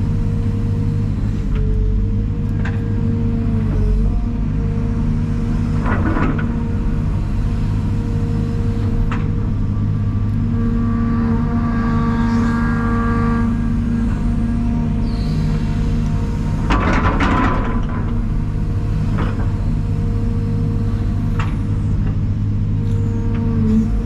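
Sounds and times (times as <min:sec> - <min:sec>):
diesel engine droning: 0:00.0 - 0:24.0.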